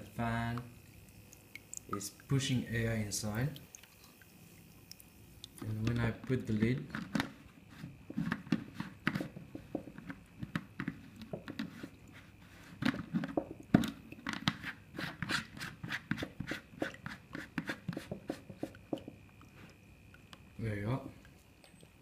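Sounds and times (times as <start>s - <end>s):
faint high whine: 0.0s - 9.0s, 18.6s - 22.0s.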